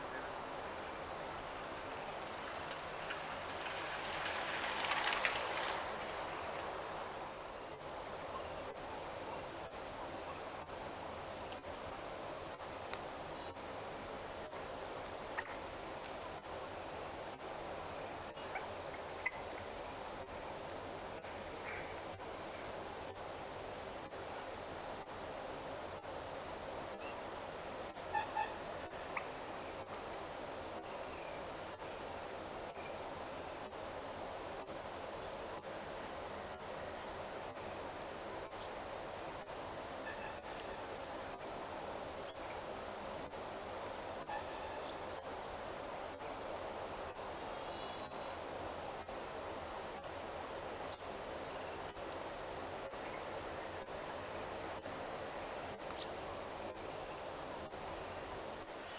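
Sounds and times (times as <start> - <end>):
crickets and frogs chorus: 0.0 - 58.9
insect trill: 24.6 - 58.9.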